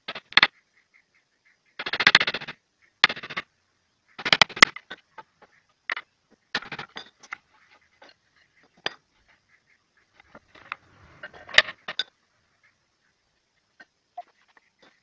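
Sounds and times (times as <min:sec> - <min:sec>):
sharp wooden knocks: 0:01.8 - 0:03.4, 0:04.2 - 0:04.9, 0:06.6 - 0:07.2
wooden strips clicking: 0:01.8 - 0:03.4.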